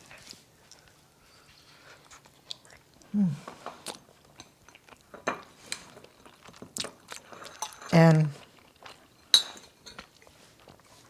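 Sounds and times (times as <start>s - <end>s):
person chewing and crunching food: 1.7s - 11.0s
person humming: 3.2s - 3.5s.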